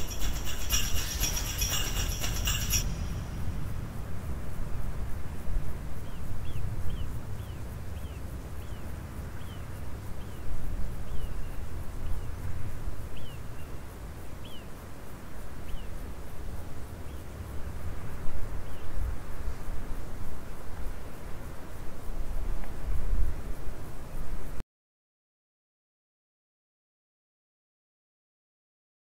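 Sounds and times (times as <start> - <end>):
bird chirping: 0.0 - 3.6
low rumbling background noise: 0.0 - 24.6.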